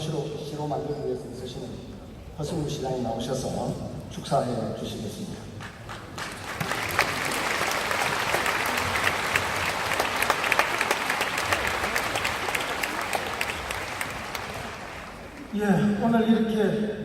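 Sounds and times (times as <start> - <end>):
crowd applauding: 5.6 - 15.6.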